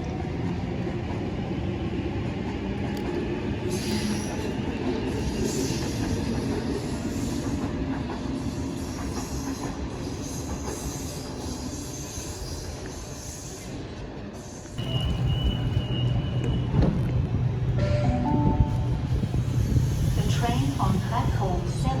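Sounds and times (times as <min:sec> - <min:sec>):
electric train rumbling: 0:00.0 - 0:22.0
train wheels squealing: 0:03.7 - 0:17.0.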